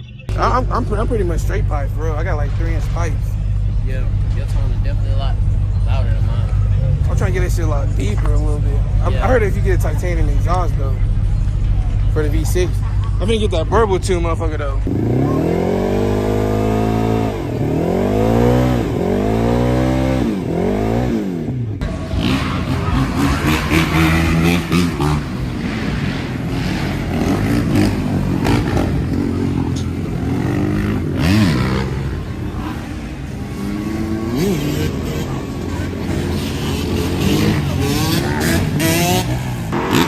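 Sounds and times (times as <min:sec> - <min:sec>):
car engine revving: 0:00.0 - 0:40.0
rough noise: 0:13.4 - 0:40.0.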